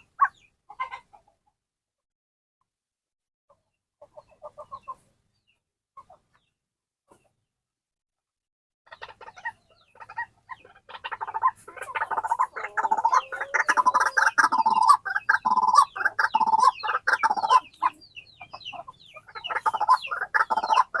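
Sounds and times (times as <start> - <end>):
waterhen calling: 0.0 - 1.3, 8.9 - 21.0.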